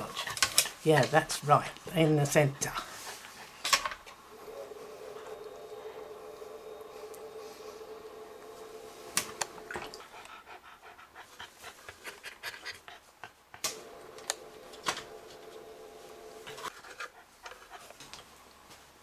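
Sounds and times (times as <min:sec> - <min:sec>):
dog panting: 0:00.0 - 0:00.9, 0:01.6 - 0:06.2, 0:09.6 - 0:13.8, 0:16.4 - 0:18.2
steady mechanical hum: 0:00.0 - 0:10.6, 0:13.4 - 0:19.0.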